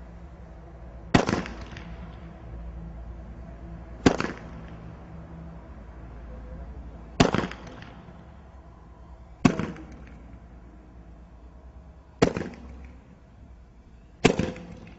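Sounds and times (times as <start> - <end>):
firework bangs: 1.1 - 2.2, 4.0 - 4.8, 7.2 - 8.4, 9.4 - 10.4, 12.2 - 13.0, 14.2 - 14.9.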